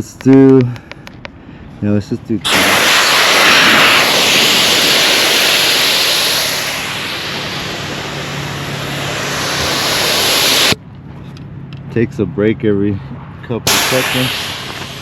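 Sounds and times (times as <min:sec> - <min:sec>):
air hissing out of tires: 0:02.5 - 0:10.8, 0:13.7 - 0:15.0.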